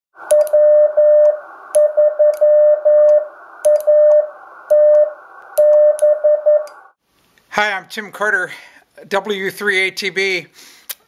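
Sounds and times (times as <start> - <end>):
radio receiver hiss: 0.2 - 7.5
morse code beeping: 0.3 - 6.9.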